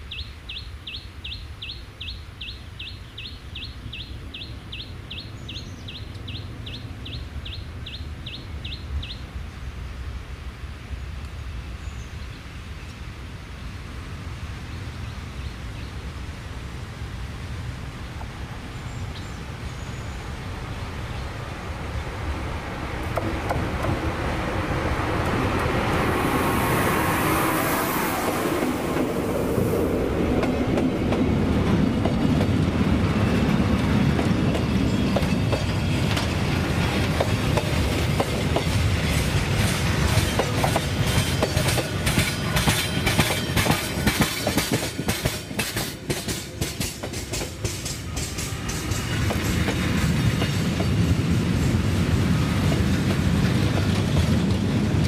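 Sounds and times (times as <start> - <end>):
locomotive high hiss: 16.0 - 34.0
train wheels clattering over rail joints: 30.4 - 52.0, 52.6 - 55.0.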